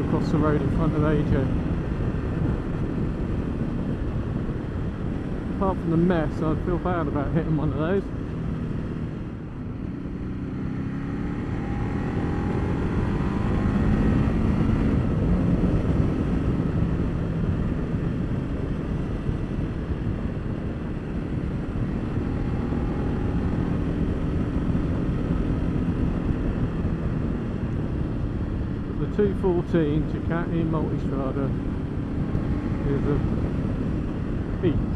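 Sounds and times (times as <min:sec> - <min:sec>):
wind rush on microphone: 0:00.0 - 0:34.9
motorcycle engine revving: 0:06.6 - 0:34.9.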